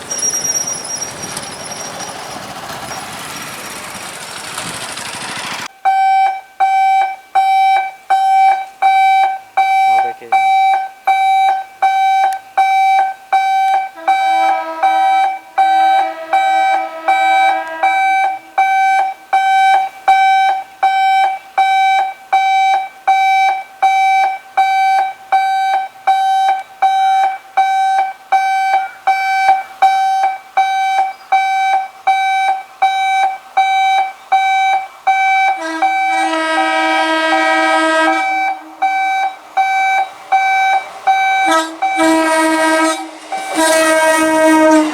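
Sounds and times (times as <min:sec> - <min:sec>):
electric warning alarm beeping: 0:00.0 - 0:03.2, 0:05.7 - 0:43.9
low sustained horn tone: 0:13.8 - 0:19.6, 0:35.4 - 0:39.4, 0:40.3 - 0:44.9.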